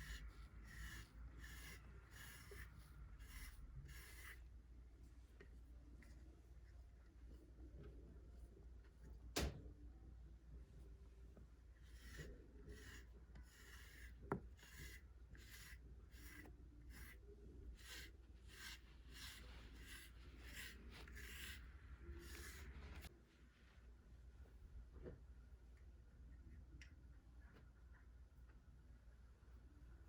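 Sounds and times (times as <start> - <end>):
brush stroking cat fur: 0.0 - 8.8, 10.8 - 23.1.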